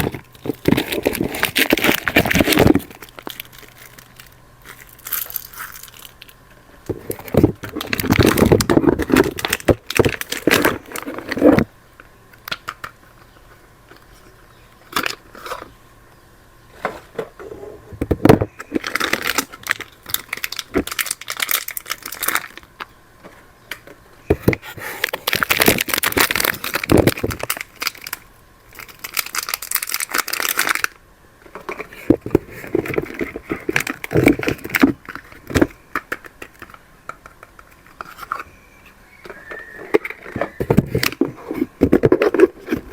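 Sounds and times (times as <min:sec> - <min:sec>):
wrapper crinkling and tearing: 0:00.0 - 0:06.4, 0:07.0 - 0:11.7, 0:18.7 - 0:22.7, 0:25.0 - 0:31.0, 0:31.7 - 0:35.6.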